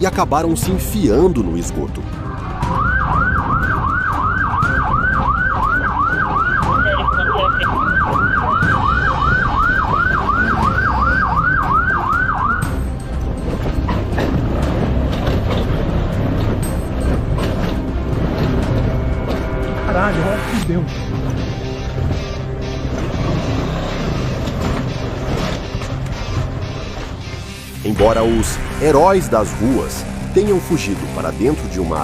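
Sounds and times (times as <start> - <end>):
vehicle engine and road noise: 0.0 - 32.0
police siren yelping: 2.3 - 12.8.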